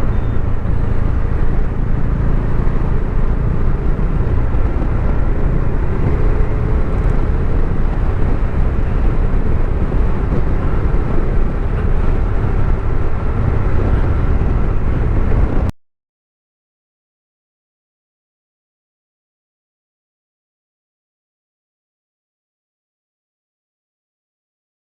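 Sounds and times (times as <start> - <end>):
motorcycle engine: 0.0 - 15.7
wind noise on microphone: 0.0 - 15.7.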